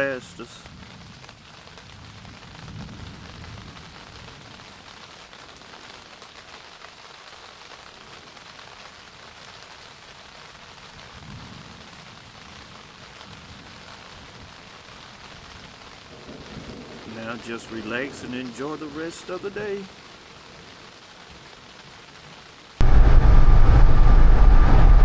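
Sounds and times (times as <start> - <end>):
rain pattering: 0.0 - 25.0
low rumbles: 22.8 - 25.0.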